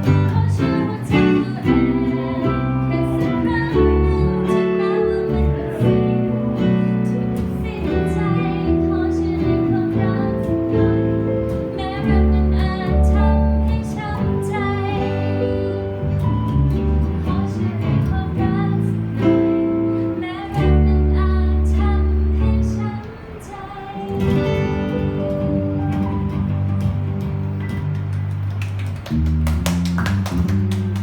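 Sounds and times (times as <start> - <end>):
person singing: 0.0 - 16.0
acoustic guitar: 0.0 - 31.0.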